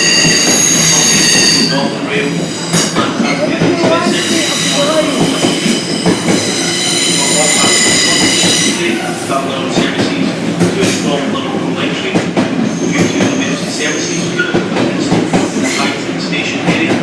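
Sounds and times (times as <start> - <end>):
train metallic squeal: 0.0 - 9.7, 12.6 - 14.6, 15.3 - 16.0
train clatter: 0.0 - 17.0
train rumble: 0.0 - 17.0.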